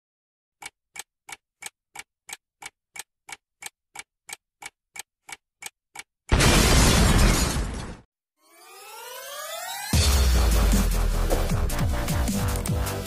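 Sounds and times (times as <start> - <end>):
clock ticking: 0.6 - 6.4
loud crash: 6.3 - 8.1.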